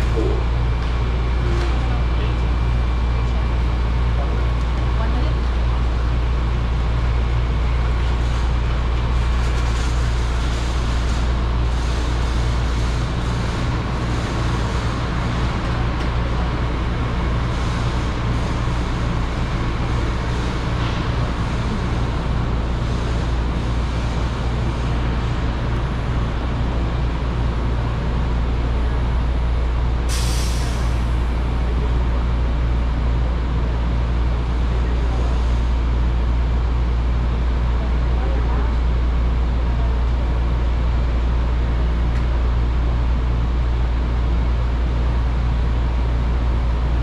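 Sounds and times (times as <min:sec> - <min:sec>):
train running with low rumble: 0:00.0 - 0:47.0
brake air hiss: 0:30.1 - 0:31.1.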